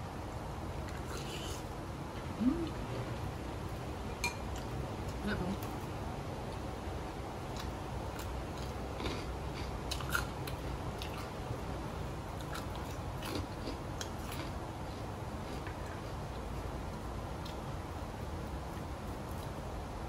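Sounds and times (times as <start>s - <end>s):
steady low hum: 0.0s - 20.0s
person biting and chewing food: 12.4s - 15.9s.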